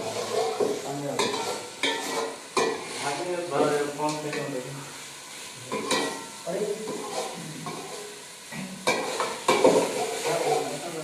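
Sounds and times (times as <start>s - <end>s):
food sizzling in a pot: 0.0s - 11.0s
utensil clattering against pot: 8.8s - 10.6s.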